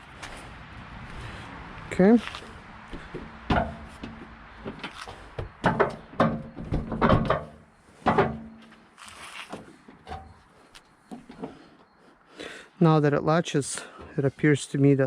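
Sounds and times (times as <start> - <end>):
car hood knocking onto latch: 5.6 - 7.5.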